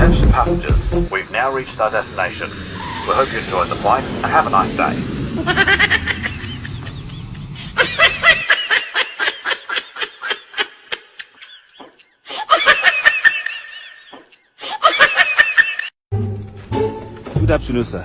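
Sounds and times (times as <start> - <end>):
high-pitched laughter: 5.4 - 16.0.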